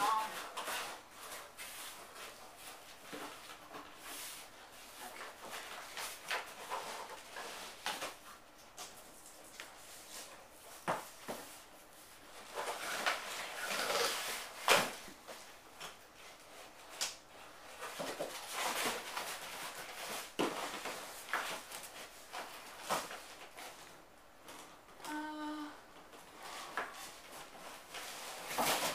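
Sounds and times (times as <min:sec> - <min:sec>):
packaging rustling and scraping: 0:00.0 - 0:24.9, 0:26.1 - 0:28.9.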